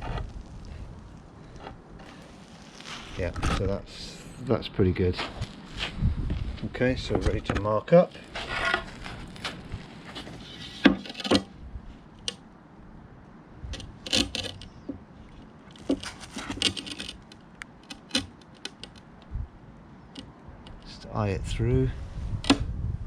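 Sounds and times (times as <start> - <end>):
scraping on paving: 0.0 - 12.1, 13.7 - 19.0
tools clicking and tapping on paving: 13.7 - 19.3.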